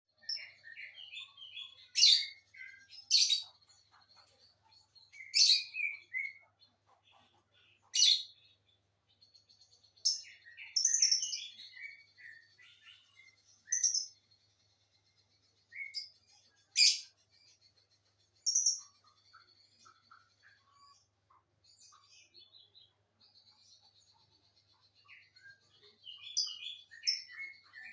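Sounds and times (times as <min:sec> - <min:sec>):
lovebirds chattering: 0:10.0 - 0:14.2, 0:16.7 - 0:17.2.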